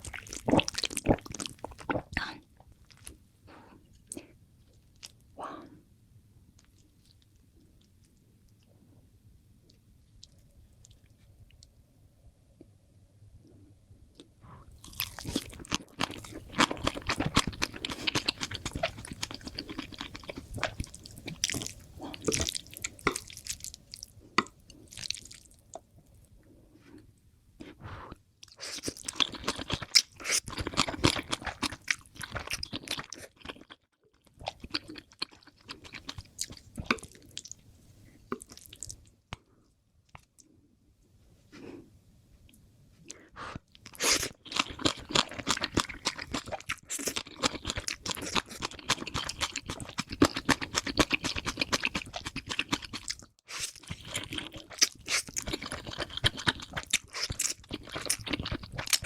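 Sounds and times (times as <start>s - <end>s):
person chewing noodles: 0.0s - 3.2s, 14.8s - 26.2s, 28.0s - 37.6s, 38.3s - 39.1s, 43.4s - 59.0s.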